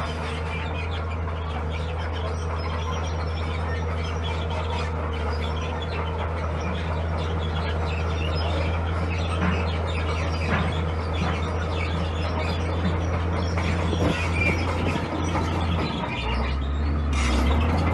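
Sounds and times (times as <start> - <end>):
diesel engine droning: 0.0 - 17.9.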